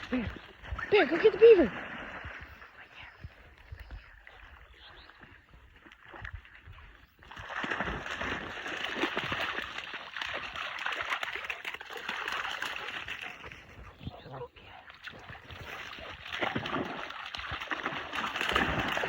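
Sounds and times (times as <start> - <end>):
dog splashing through water: 0.0 - 3.0, 3.8 - 19.0.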